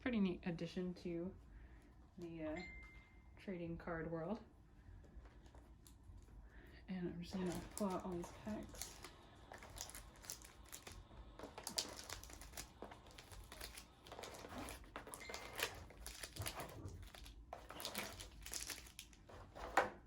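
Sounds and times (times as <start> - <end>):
foil packs crinkling: 7.2 - 20.0.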